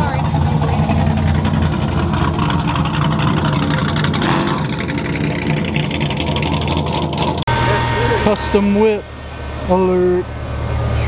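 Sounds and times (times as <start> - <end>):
loud car exhaust at low revs: 0.0 - 11.0.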